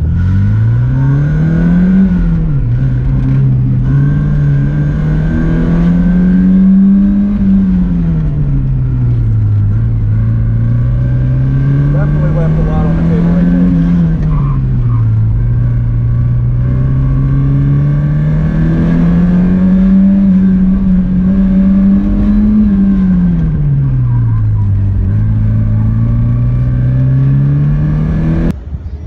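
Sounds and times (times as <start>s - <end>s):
car engine accelerating: 0.0s - 28.6s.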